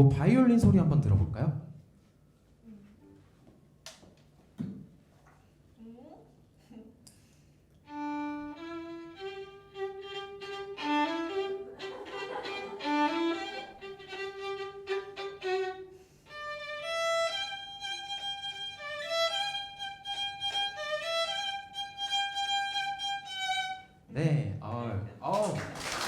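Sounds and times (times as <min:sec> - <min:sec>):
solo violin melody: 0:07.8 - 0:24.1.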